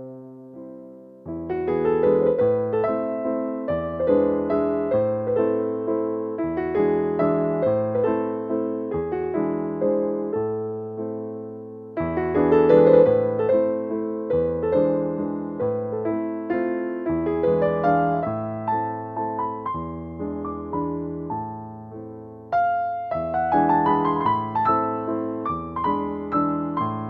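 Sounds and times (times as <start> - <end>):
gentle piano chords: 0.0 - 27.0.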